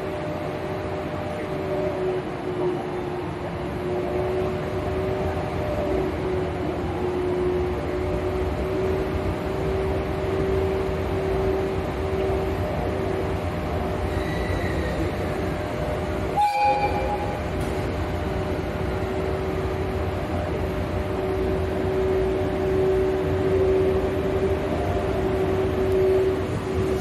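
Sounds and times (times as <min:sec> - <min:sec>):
electric locomotive humming: 0:00.0 - 0:27.0
train pulling in: 0:00.0 - 0:27.0
train horn blast: 0:16.3 - 0:17.4.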